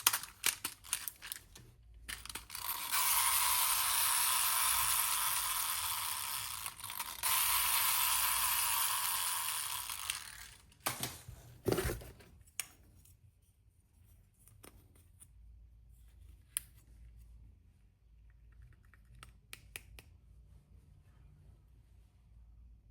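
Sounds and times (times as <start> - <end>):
plastic toy pieces clicking: 0.0 - 10.7.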